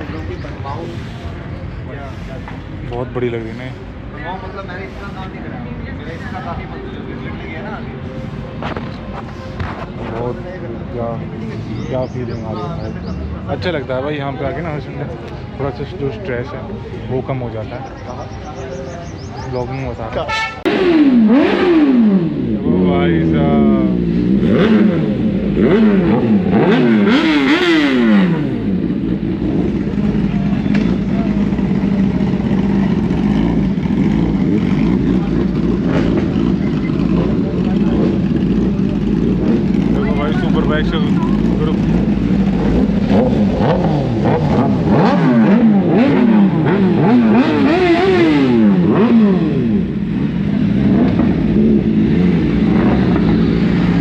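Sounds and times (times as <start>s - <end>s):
motorcycle engine revving: 18.5s - 54.0s.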